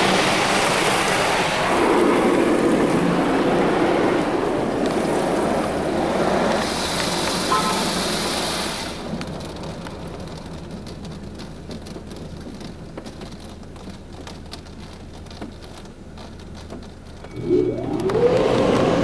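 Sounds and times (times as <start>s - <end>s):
water spray hissing on car: 0.0s - 4.2s, 4.8s - 9.3s
water dripping on roof and glass: 0.0s - 19.0s.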